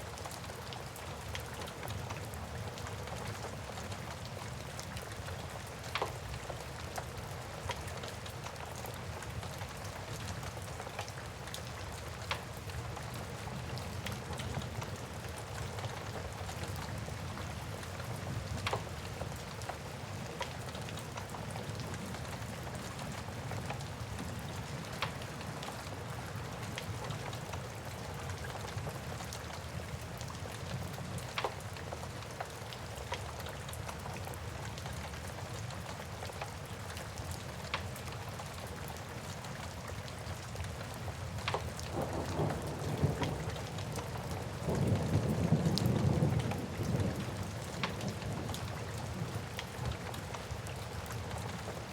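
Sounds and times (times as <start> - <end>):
steady rain: 0.0 - 51.9.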